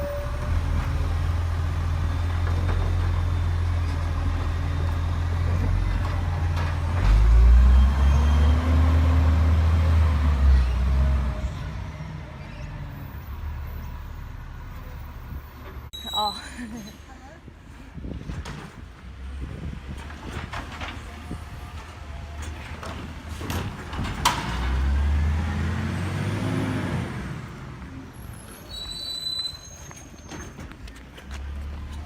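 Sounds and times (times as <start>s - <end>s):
truck diesel engine rumbling: 0.0s - 16.9s.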